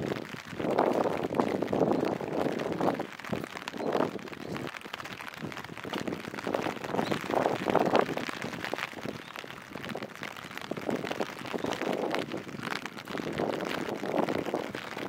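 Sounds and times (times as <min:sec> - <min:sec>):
rain falling on street: 0:00.0 - 0:15.0
sharp raindrop clicks: 0:00.0 - 0:15.0.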